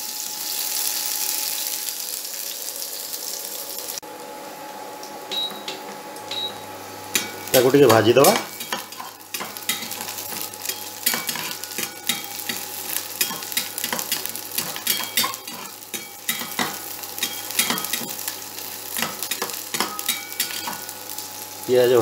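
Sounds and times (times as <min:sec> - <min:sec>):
onions sizzling in hot oil: 0:00.0 - 0:04.0, 0:06.8 - 0:22.0
spatula scraping and tapping pan: 0:07.1 - 0:18.3, 0:19.0 - 0:20.9.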